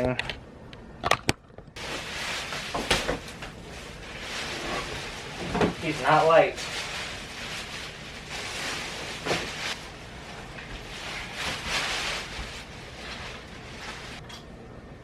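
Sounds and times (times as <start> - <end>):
packaging rustling and scraping: 1.8 - 14.2.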